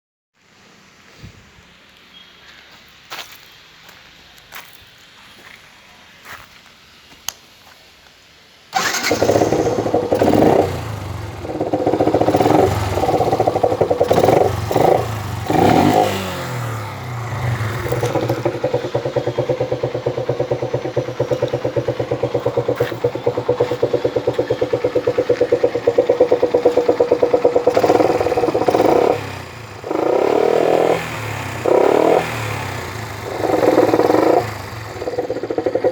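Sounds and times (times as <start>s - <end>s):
motorcycle engine starting and revving: 8.7s - 35.9s
motorcycle engine idling: 8.8s - 35.9s.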